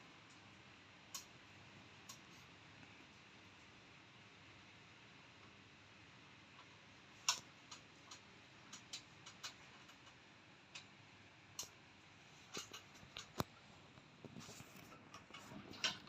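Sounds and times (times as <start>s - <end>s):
sharp clicks and ticks: 6.6s - 10.9s, 11.5s - 11.8s.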